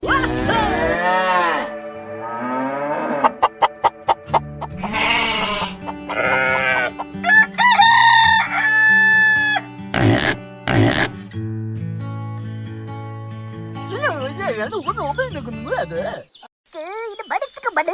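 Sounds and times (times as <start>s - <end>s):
background music: 0.0s - 16.1s
rooster-like call: 2.8s - 9.7s.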